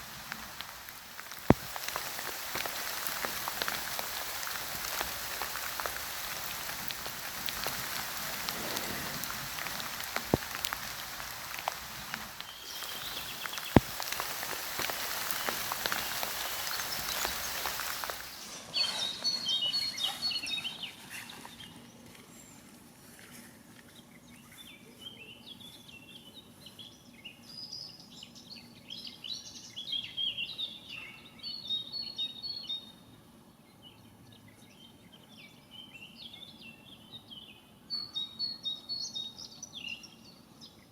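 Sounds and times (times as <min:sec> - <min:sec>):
drops and clicks: 0:00.0 - 0:18.3
rain-like hiss: 0:00.0 - 0:20.6
bird call: 0:00.0 - 0:21.4
songbird chirping: 0:00.0 - 0:22.3.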